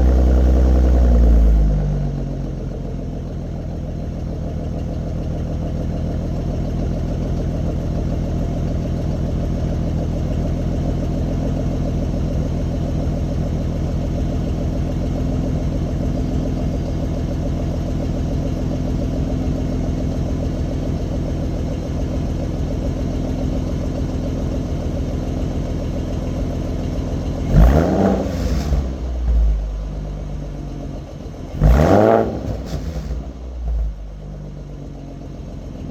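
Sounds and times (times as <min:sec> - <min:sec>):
engine revving: 0:00.0 - 0:01.8, 0:27.4 - 0:29.6, 0:31.5 - 0:34.0
car engine idling: 0:00.0 - 0:35.9.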